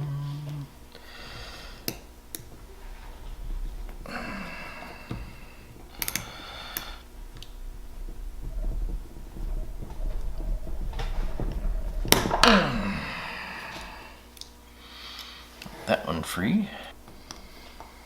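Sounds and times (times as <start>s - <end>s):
squeaky scraping: 0.0s - 14.3s
low steady hum: 0.0s - 18.0s.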